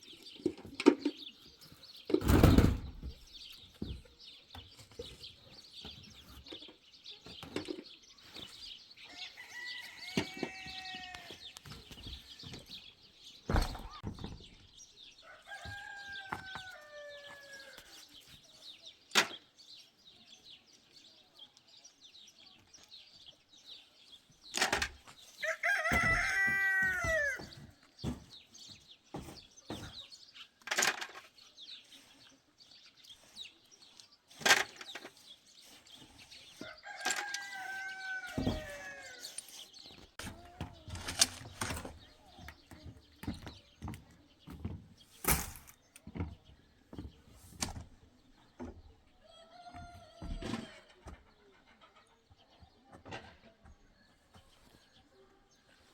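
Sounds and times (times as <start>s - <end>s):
rooster crowing: 15.2s - 17.8s, 25.4s - 27.5s, 36.8s - 39.2s.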